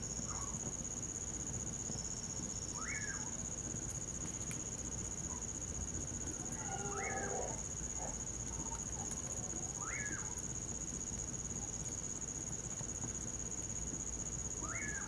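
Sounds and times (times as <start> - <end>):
crickets trilling: 0.0 - 15.0
nightjar calling: 2.8 - 3.3, 6.6 - 7.6, 9.8 - 10.3, 14.6 - 15.0.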